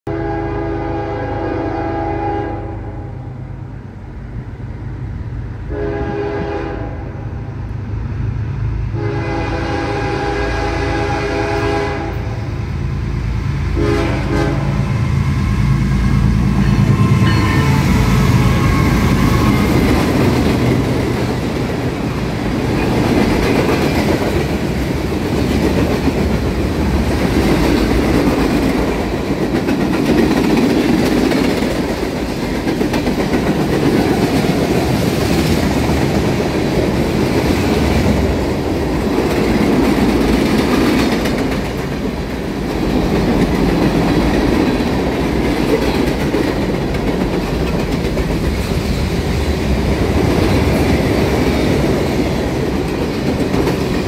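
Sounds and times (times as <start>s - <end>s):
locomotive horn blasts: 0.1s - 3.2s, 5.7s - 7.2s, 9.0s - 12.4s, 13.8s - 19.9s
diesel locomotive rumble: 0.2s - 54.0s.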